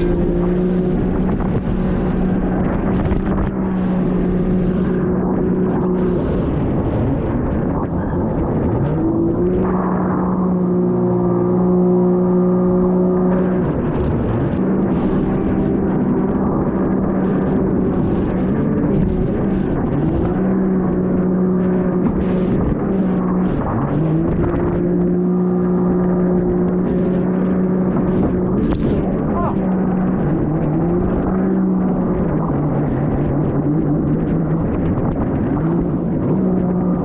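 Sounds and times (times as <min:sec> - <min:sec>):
engine revving: 0:00.0 - 0:06.1.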